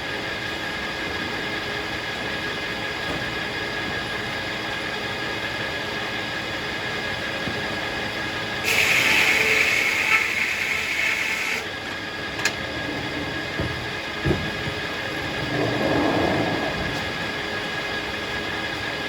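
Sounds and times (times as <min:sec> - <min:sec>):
circular saw blade whining: 0:08.6 - 0:12.6.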